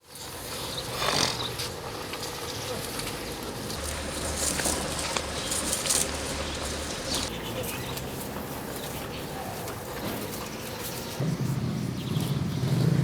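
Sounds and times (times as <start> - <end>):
cattle lowing: 0.4 - 1.8, 3.7 - 7.3
low steady hum: 3.6 - 7.3
background voices: 3.6 - 10.6.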